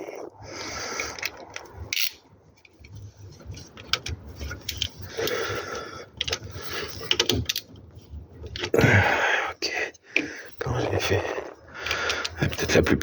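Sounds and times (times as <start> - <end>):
socket wrench clicking: 1.1 - 2.2.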